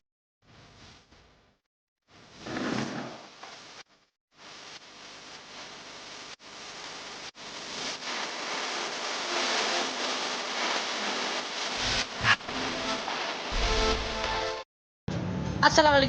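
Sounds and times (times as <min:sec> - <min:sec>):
bonfire crackling: 0:03.3 - 0:14.6.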